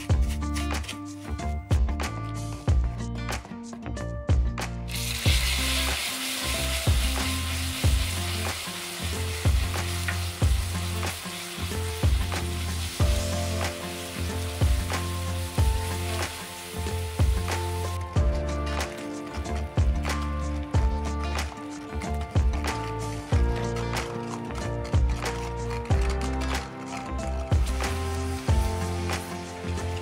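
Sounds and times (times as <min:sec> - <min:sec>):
background music with beat: 0:00.0 - 0:30.0
food sizzling in pan: 0:04.9 - 0:22.0, 0:27.5 - 0:30.0.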